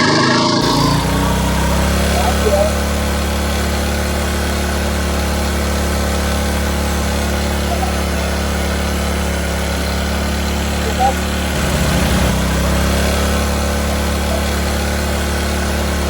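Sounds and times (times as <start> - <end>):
generator engine running: 0.0 - 16.0.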